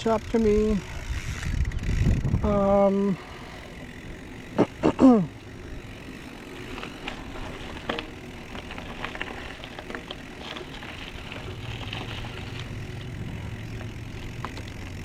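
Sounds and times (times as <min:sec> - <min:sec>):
bike clicks and rattles: 0:00.0 - 0:15.0
tyre and wind noise: 0:00.0 - 0:15.0
person grunting: 0:04.5 - 0:05.4.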